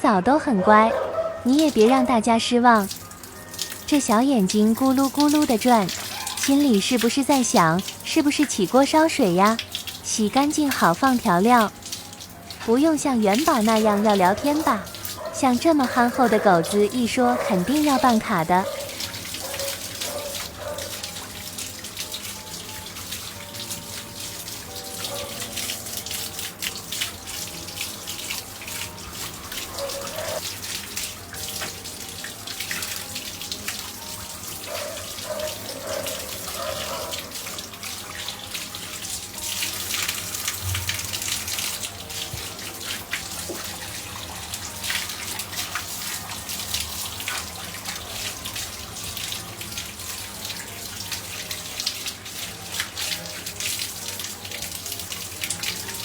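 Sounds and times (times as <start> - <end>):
water running and splashing: 0.5 - 56.0.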